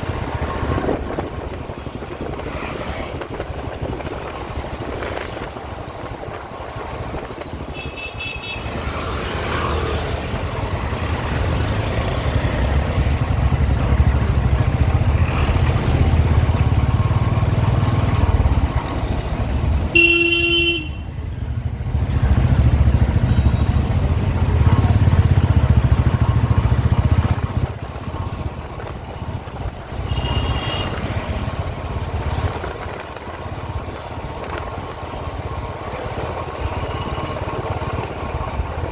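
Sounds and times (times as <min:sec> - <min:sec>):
motorcycle engine running: 0:00.0 - 0:38.9
vehicle horns honking: 0:07.6 - 0:08.8, 0:19.8 - 0:21.2, 0:30.0 - 0:31.1.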